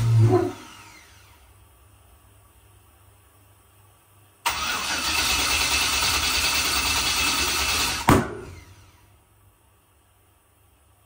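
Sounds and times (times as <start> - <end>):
engine cranking on starter: 4.4 - 9.0.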